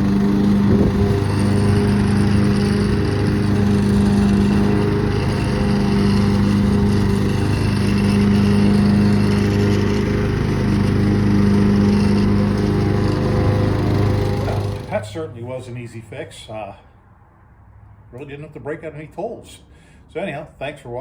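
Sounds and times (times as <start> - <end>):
lawn tractor engine running: 0.0 - 15.4.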